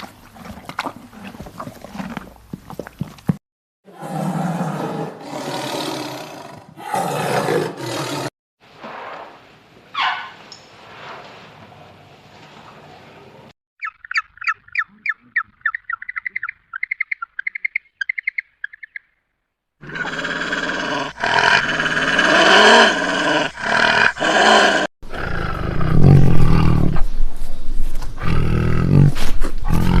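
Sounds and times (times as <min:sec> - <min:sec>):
bird chirping: 0:13.8 - 0:19.3.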